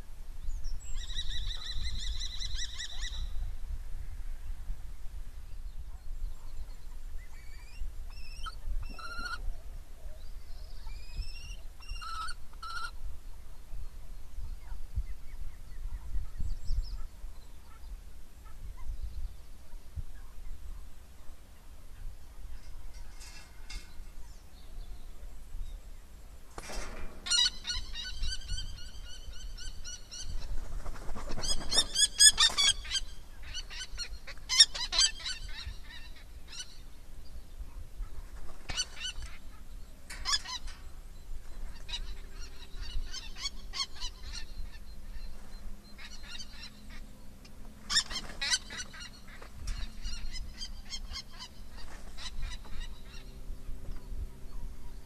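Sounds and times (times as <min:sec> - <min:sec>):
birds calling ringing notes: 0:21.6 - 0:30.5, 0:31.4 - 0:55.0.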